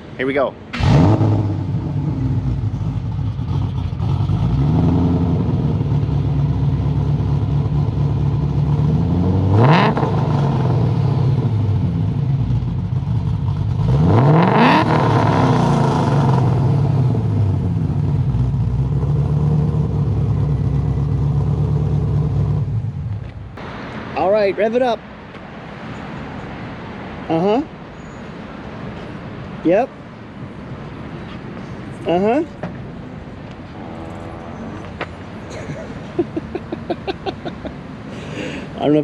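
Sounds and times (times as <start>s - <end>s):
car engine idling and revving: 0.7s - 23.9s, 31.6s - 39.0s.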